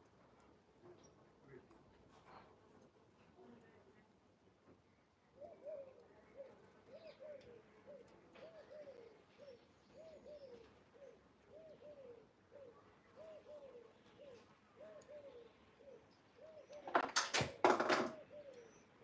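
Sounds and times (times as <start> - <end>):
dove cooing: 5.4 - 19.0.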